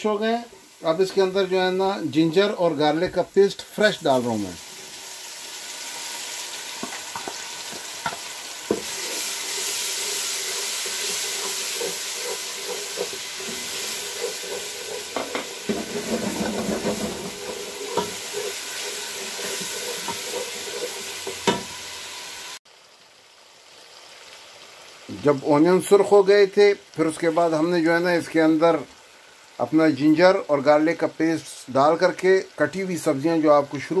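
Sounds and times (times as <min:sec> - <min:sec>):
paste sizzling in oil: 0:00.0 - 0:34.0
wooden spatula scraping pan: 0:06.8 - 0:21.7.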